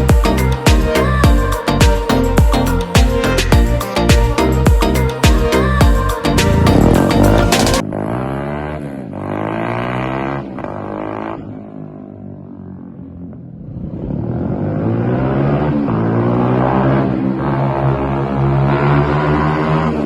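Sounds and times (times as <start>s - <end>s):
small motorbike engine revving: 5.7s - 12.4s, 13.4s - 20.0s.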